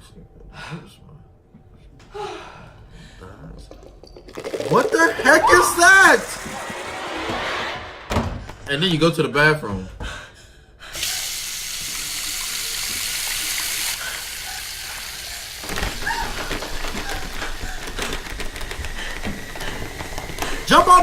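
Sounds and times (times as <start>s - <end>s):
tap water running into sink: 3.5s - 5.4s, 11.0s - 21.0s.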